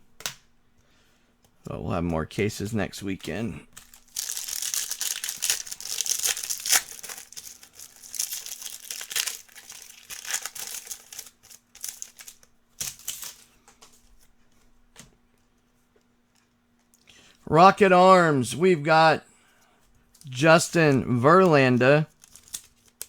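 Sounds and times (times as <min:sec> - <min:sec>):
foil wrappers crinkling and tearing: 0:03.7 - 0:13.6, 0:22.1 - 0:23.0.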